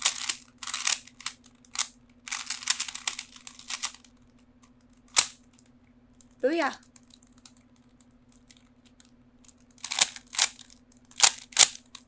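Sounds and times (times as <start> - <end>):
plastic puzzle cube clicking: 0.0 - 4.1, 9.8 - 12.0.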